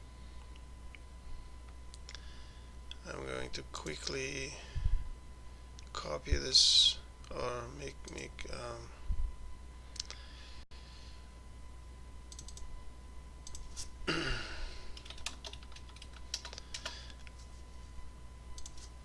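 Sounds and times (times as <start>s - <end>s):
keyboard typing: 12.3s - 12.6s, 14.9s - 17.0s.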